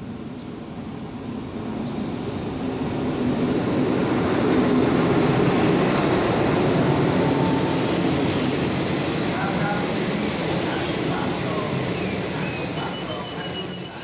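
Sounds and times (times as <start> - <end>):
train coaches rolling on rails: 4.1 - 14.0.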